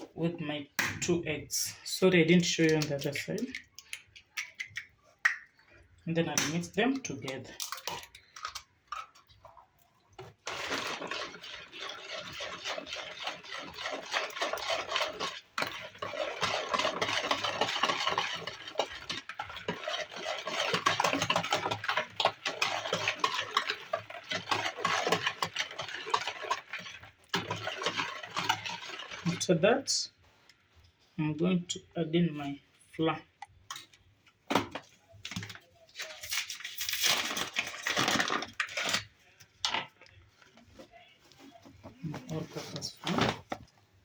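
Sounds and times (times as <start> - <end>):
whisk clattering in bowl: 10.4 - 29.4.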